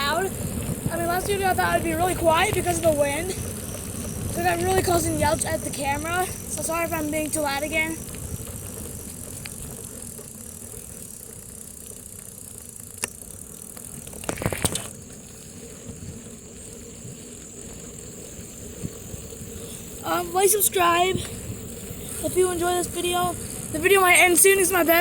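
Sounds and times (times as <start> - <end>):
bike rattling over bumps: 0.0 - 25.0
rumble of bicycle tyres and air: 0.0 - 25.0.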